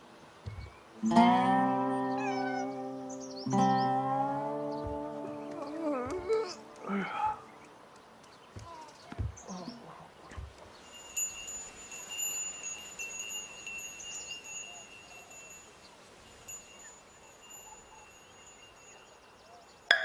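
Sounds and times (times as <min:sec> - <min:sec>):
wind chimes ringing: 0:10.8 - 0:20.0.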